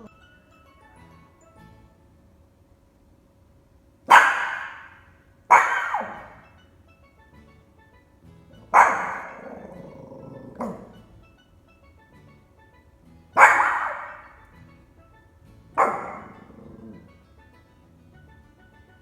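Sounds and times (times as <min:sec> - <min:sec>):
quiet background music: 0:00.0 - 0:19.0
small dog barking: 0:04.1 - 0:06.4, 0:08.6 - 0:11.0, 0:13.4 - 0:14.4, 0:15.8 - 0:17.0.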